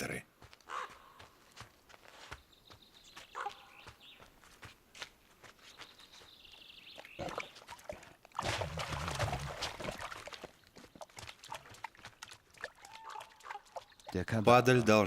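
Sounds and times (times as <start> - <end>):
thin high animal calls: 0.7 - 1.1, 12.8 - 13.8.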